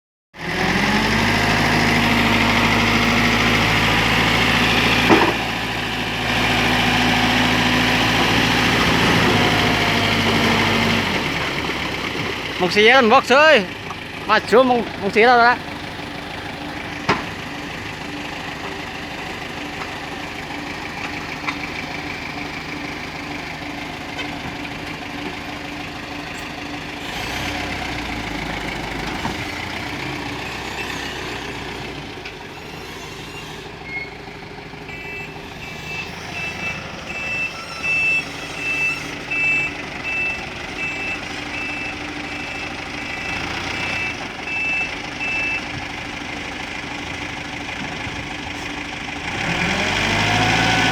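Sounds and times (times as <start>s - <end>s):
truck engine rumbling: 0.4s - 50.9s
reversing alarm beeps: 34.9s - 45.7s.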